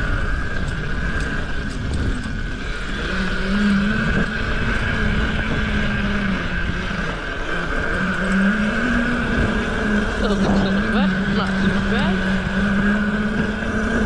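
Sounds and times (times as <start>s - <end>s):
mini bike engine running: 0.0s - 14.0s.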